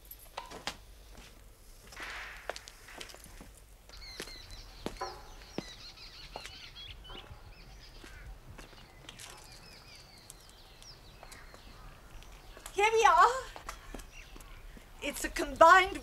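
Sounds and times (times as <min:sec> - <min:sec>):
faint outdoor ambience: 0:00.0 - 0:16.0
small birds chirping: 0:03.9 - 0:16.0.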